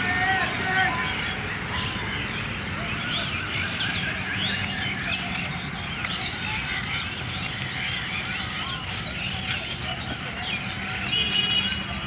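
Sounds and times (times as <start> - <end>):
flock of birds chirping: 0.0 - 12.0.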